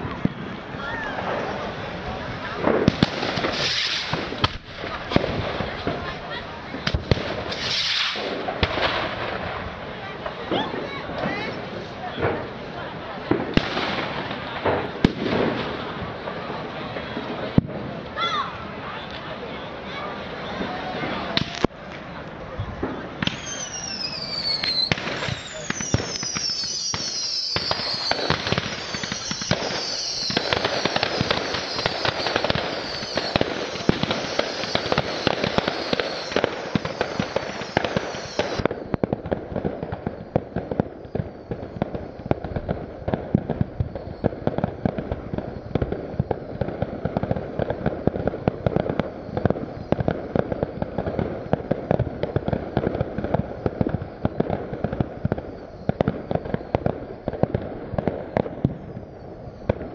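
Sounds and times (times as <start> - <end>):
firework bangs and crackling: 0.0 - 59.9
high falling whistles: 23.2 - 39.0.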